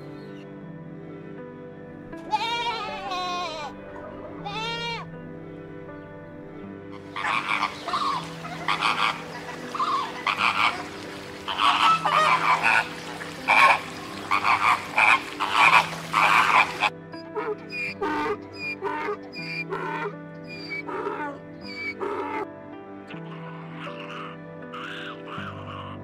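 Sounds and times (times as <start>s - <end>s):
flamingos calling: 7.0s - 22.5s.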